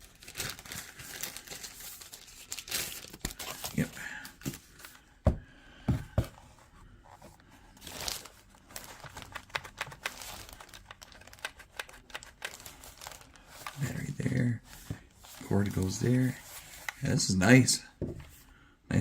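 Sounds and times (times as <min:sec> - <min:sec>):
plastic packaging crinkling: 0:00.0 - 0:04.8, 0:07.8 - 0:14.4.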